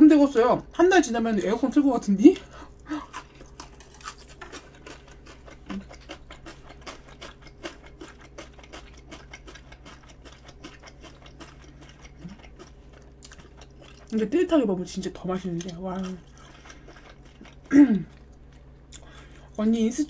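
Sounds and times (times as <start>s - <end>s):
faint low hum: 0.0s - 20.0s
quiet chewing clicks: 3.1s - 14.2s, 15.5s - 19.4s.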